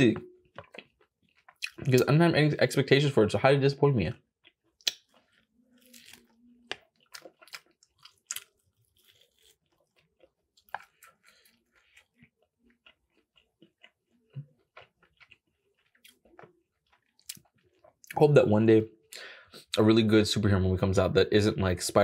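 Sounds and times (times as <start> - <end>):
person chewing tough chicken: 0.2 - 2.0, 4.3 - 18.1
wet mouth clicks: 4.7 - 5.2.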